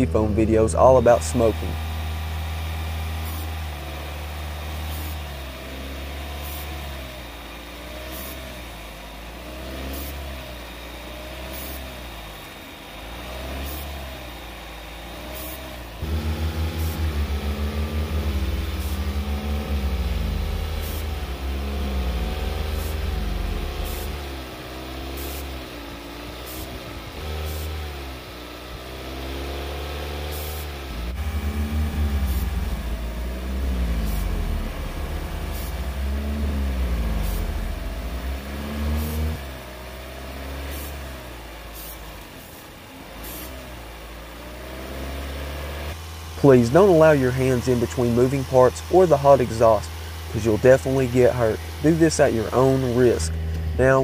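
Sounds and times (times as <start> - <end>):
car engine at raised revs: 0.0 - 54.0
aerosol can hissing: 20.7 - 21.8, 22.4 - 24.2, 25.1 - 25.6, 26.4 - 27.8, 30.3 - 30.7, 35.4 - 37.6, 38.7 - 39.3, 40.7 - 41.0, 41.7 - 42.1, 43.2 - 43.6.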